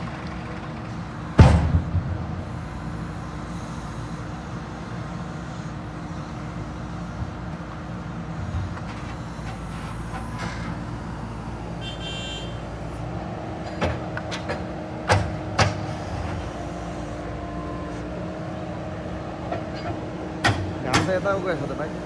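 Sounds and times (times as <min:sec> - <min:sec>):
heavy diesel machinery running: 0:00.0 - 0:22.0
sharp metallic knocks: 0:01.4 - 0:03.7, 0:19.5 - 0:21.5.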